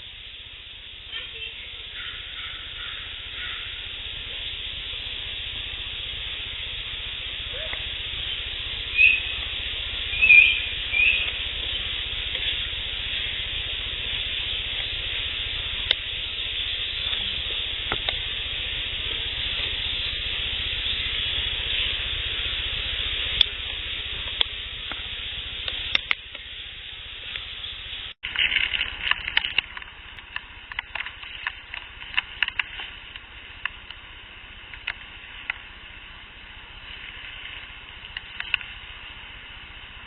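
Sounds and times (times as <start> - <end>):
steady hiss: 0.0 - 40.0
sharp clicks or snaps: 25.6 - 26.5.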